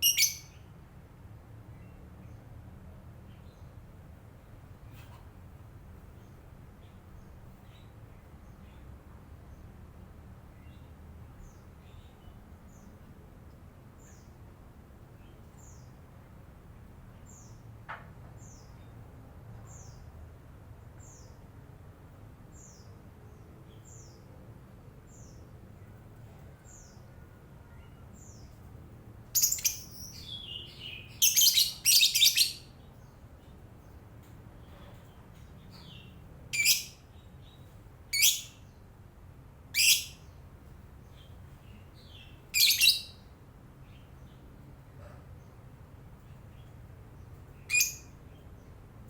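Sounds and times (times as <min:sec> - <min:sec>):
bird chirping high: 0:00.0 - 0:00.6, 0:29.4 - 0:32.8, 0:35.8 - 0:37.0, 0:38.1 - 0:38.6, 0:39.7 - 0:40.3, 0:42.0 - 0:43.2, 0:47.6 - 0:48.2.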